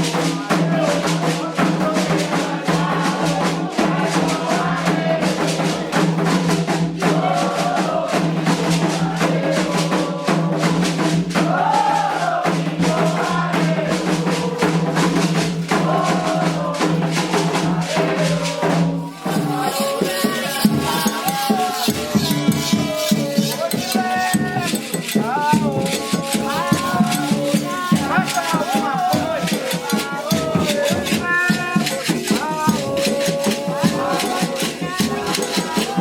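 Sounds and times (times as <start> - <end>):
drums and hand percussion: 0.0 - 36.0
sung chant: 0.0 - 36.0.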